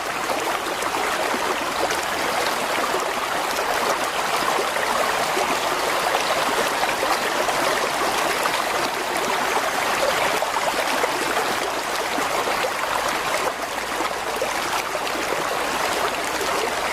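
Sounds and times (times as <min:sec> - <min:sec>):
stream flowing over rocks: 0:00.0 - 0:16.9.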